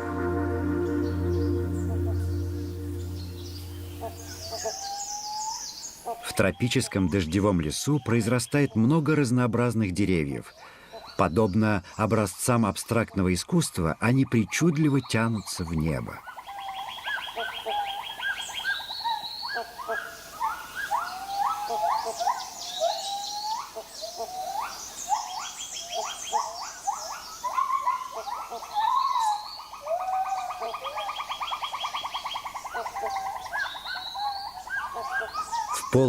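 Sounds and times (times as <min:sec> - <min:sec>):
bird calls: 0:00.0 - 0:07.3, 0:14.6 - 0:36.0.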